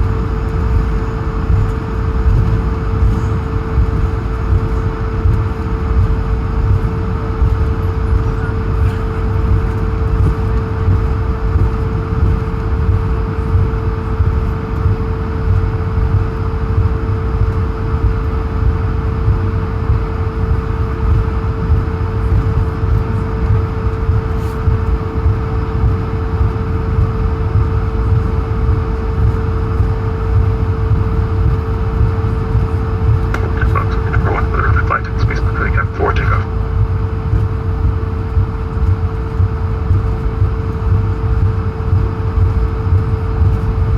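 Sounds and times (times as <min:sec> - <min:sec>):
constant hum: 0:00.0 - 0:43.9
jet engines idling rumble: 0:32.1 - 0:36.6.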